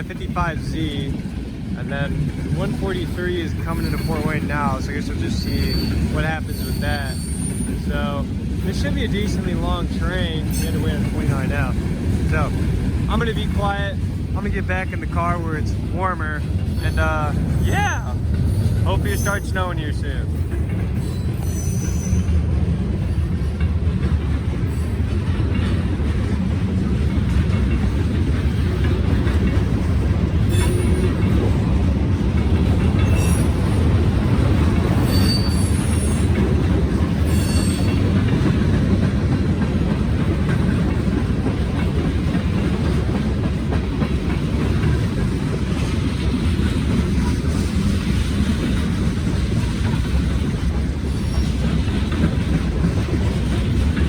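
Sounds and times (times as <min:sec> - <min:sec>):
train wheels rumbling on rail: 0:00.0 - 0:54.0
high wheel squeals: 0:03.5 - 0:08.0, 0:16.7 - 0:20.2, 0:21.0 - 0:22.4, 0:30.5 - 0:31.2, 0:33.0 - 0:33.9, 0:34.9 - 0:36.4, 0:37.2 - 0:38.2.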